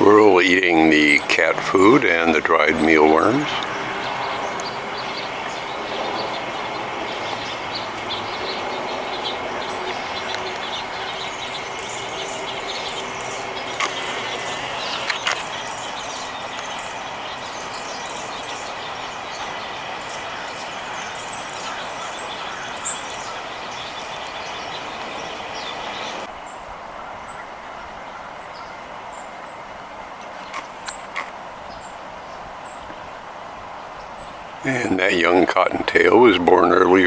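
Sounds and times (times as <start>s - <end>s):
high bird chirps: 1.4s - 26.3s.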